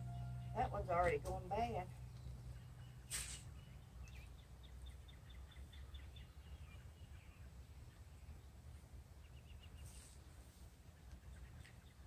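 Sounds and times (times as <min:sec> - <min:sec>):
low steady background: 0:00.0 - 0:12.0
small bird chirping: 0:01.9 - 0:08.6
brief rustle: 0:03.1 - 0:03.5.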